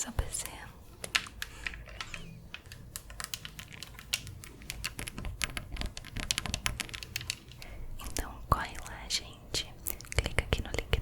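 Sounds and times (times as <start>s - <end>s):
keyboard keys clicking: 1.1s - 7.7s.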